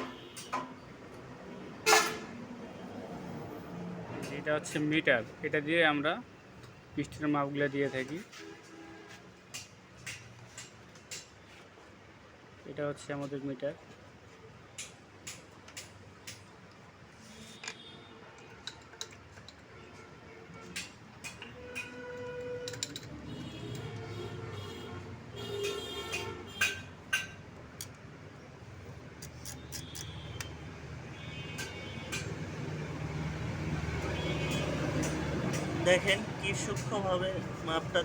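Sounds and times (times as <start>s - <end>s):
metallic clicks of tools: 18.4s - 19.7s, 20.8s - 24.0s, 25.6s - 28.0s, 29.2s - 30.5s.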